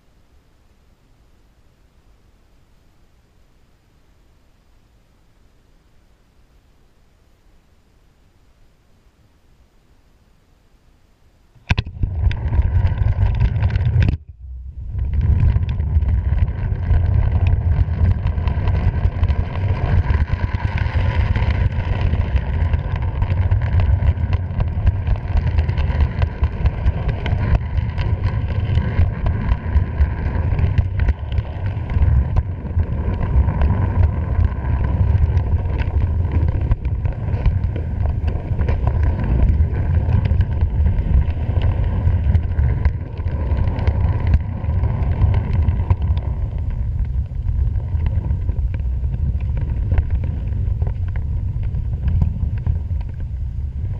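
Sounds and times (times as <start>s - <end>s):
wind buffeting microphone: 11.6s - 53.9s.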